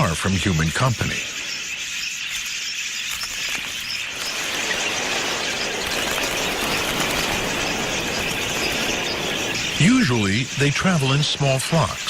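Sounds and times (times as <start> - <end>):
budgerigars chattering: 0.0 - 12.0
broad rushing noise: 4.0 - 12.0.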